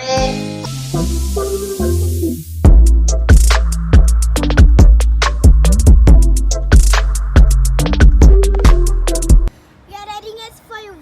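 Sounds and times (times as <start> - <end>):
electronic dance music: 0.0 - 9.5.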